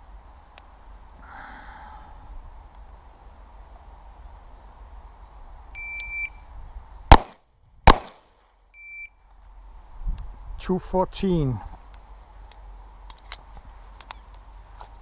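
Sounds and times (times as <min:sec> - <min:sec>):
pistol shots: 0:07.1 - 0:08.3.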